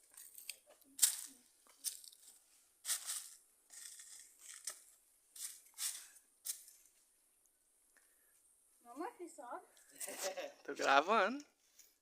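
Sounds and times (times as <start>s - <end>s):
footsteps crunching dry leaves: 1.0s - 4.8s.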